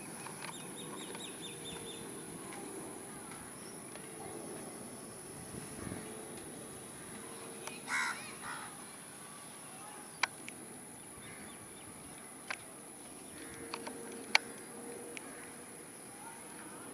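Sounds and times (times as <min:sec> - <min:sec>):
steady background hiss: 0:00.0 - 0:16.9
crow cawing: 0:07.8 - 0:08.9, 0:13.4 - 0:13.8.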